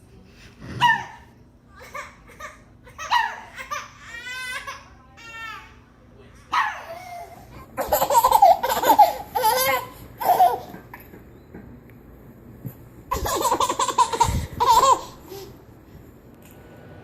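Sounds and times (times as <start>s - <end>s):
baby laughing: 6.9s - 11.2s, 13.1s - 15.5s.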